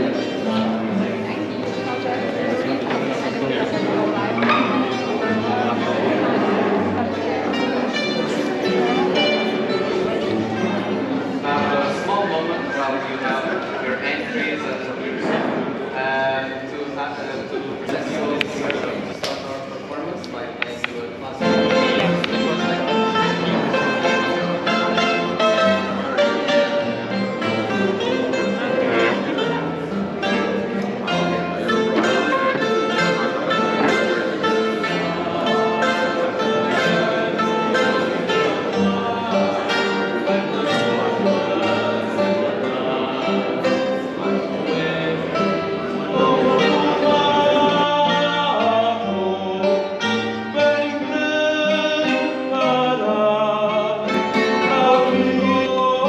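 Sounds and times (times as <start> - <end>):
plucked guitar: 0.0 - 16.6, 17.4 - 56.0
person singing: 21.4 - 56.0.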